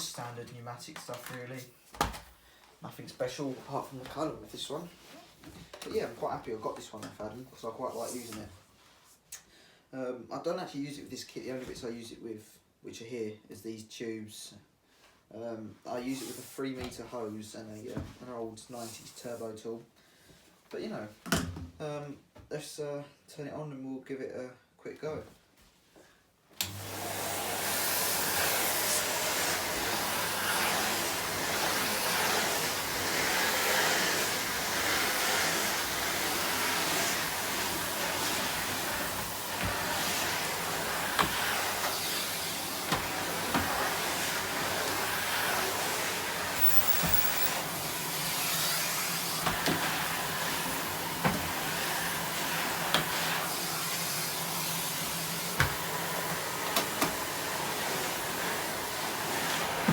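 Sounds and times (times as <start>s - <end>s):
vacuum cleaner running: 26.6s - 59.9s.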